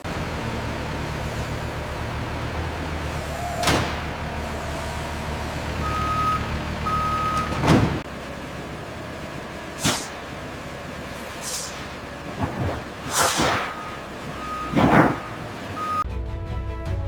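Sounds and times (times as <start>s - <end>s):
factory machinery humming: 0.0s - 16.1s
short whooshes: 11.3s - 14.0s, 14.6s - 15.4s.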